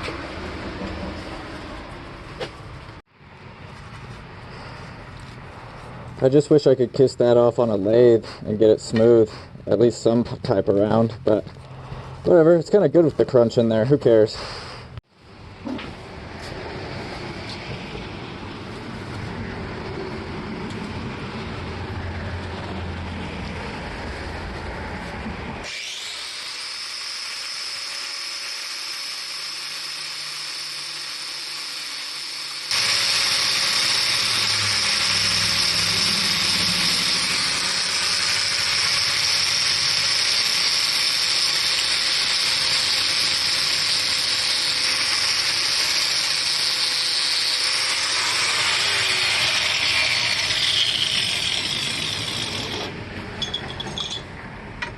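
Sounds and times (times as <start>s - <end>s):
power tool whine: 25.5s - 54.2s.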